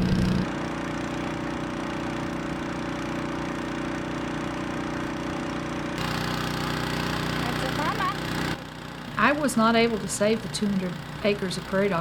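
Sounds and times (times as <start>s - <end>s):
low hum: 0.0s - 0.5s
small engine droning: 0.0s - 12.0s.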